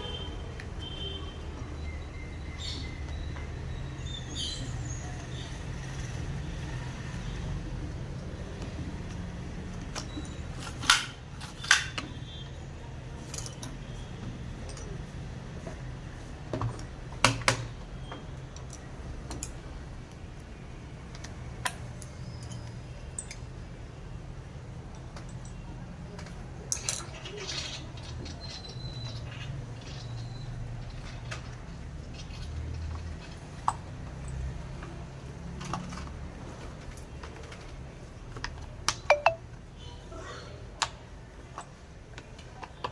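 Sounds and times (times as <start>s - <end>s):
clicks and metallic taps: 38.9s - 39.4s.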